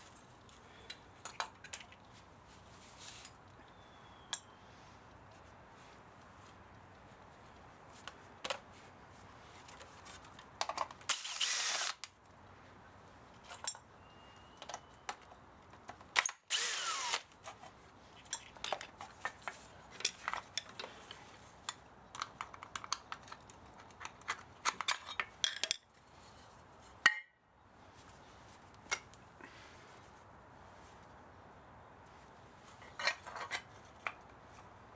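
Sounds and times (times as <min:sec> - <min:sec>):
power drill whine: 0:11.1 - 0:12.0, 0:16.5 - 0:17.2.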